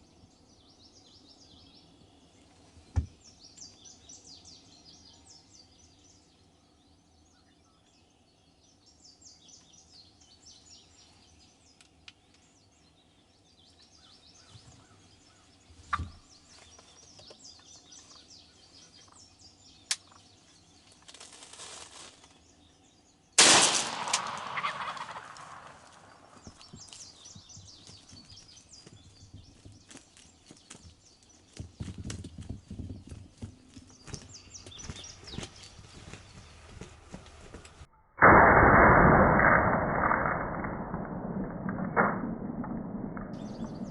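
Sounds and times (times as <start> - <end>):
small birds chirping: 0.0 - 37.9, 43.2 - 43.9
shotgun blast echoing: 23.4 - 26.6, 38.2 - 43.9
turkey gobbling: 24.6 - 25.2.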